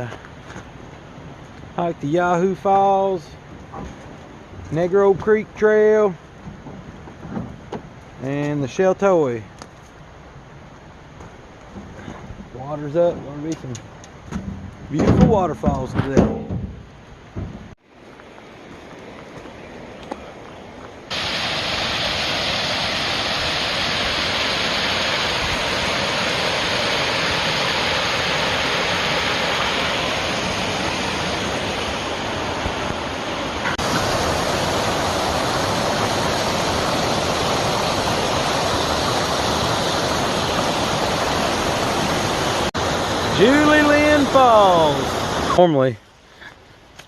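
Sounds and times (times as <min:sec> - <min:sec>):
waterfall rushing: 0:21.1 - 0:45.8.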